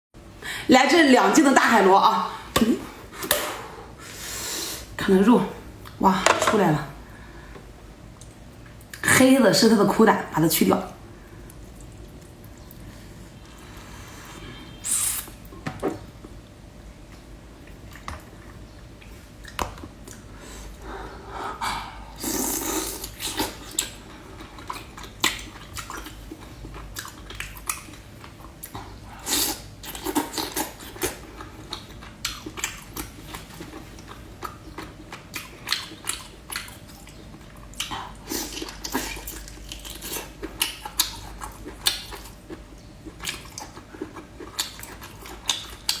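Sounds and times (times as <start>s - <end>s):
chewing wet smacks and clicks: 8.1s - 9.0s, 11.4s - 12.9s, 17.1s - 20.3s, 23.0s - 46.0s.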